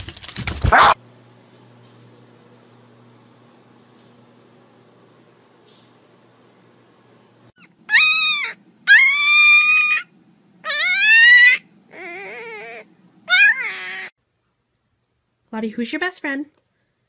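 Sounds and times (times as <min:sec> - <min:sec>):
puppy whining: 0:07.6 - 0:14.1.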